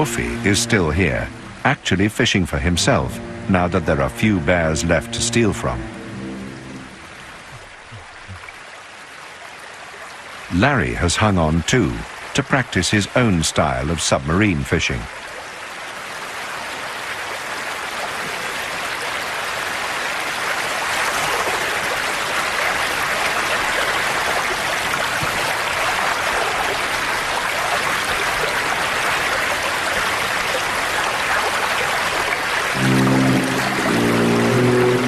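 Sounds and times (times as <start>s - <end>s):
river water rushing: 0.0s - 11.2s, 15.3s - 35.0s.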